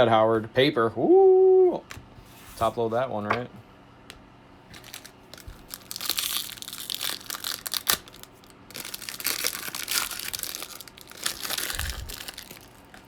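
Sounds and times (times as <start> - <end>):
foil wrapper crinkling and tearing: 4.7 - 13.0.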